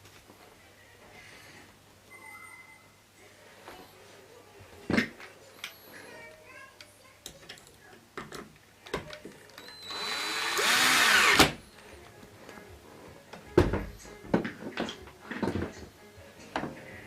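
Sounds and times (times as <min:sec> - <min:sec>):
power drill running: 0:09.6 - 0:11.6.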